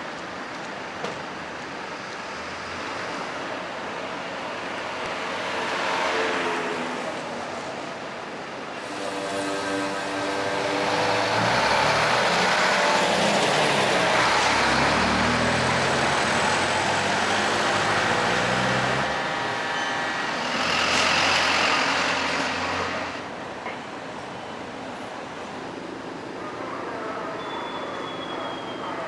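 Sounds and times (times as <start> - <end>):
heavy trucks driving past: 8.8 - 23.6.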